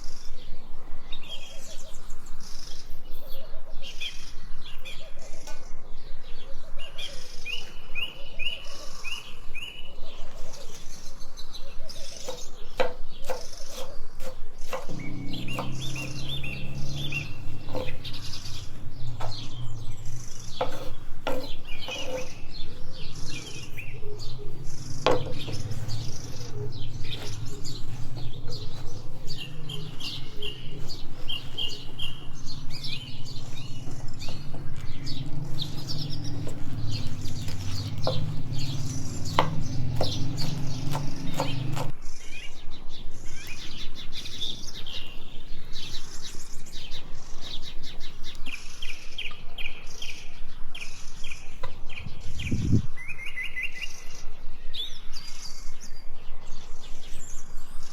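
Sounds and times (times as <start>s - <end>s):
birds chirping: 0.0s - 57.9s
steady low rumble: 22.8s - 41.8s.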